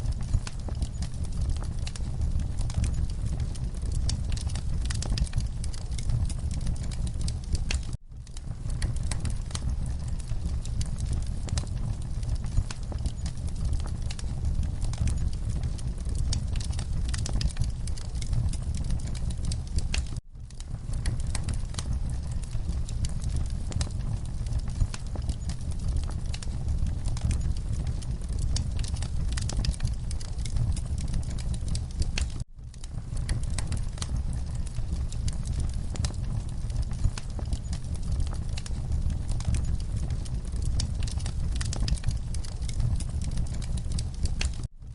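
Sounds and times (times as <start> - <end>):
low rumble of burning: 0.0 - 44.9
wood fire crackling: 0.0 - 44.9.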